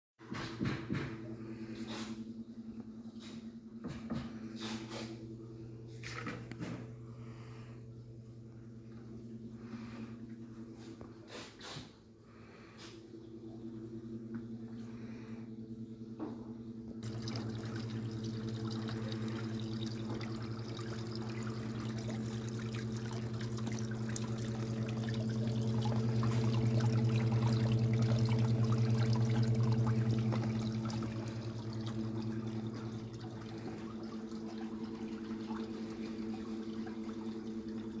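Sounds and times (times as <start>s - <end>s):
low hum: 1.3s - 11.2s, 12.0s - 38.0s
water spraying and pouring: 17.0s - 36.2s.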